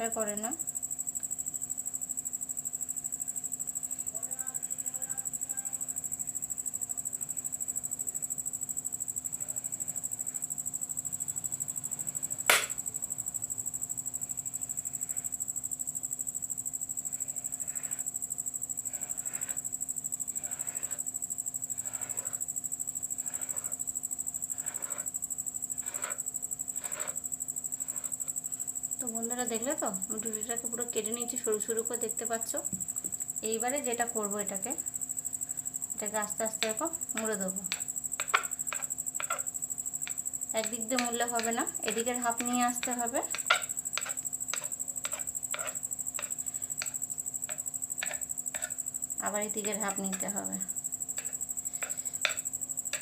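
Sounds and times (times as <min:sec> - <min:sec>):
knife cutting dough on wooden board: 0:20.4 - 0:21.0, 0:21.7 - 0:22.4, 0:25.8 - 0:26.2, 0:26.8 - 0:27.2, 0:36.6 - 0:48.8, 0:51.2 - 0:53.0.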